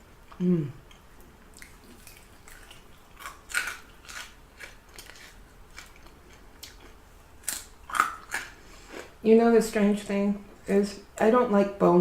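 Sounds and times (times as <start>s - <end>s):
crunching and chewing fried chicken: 0.2s - 9.1s.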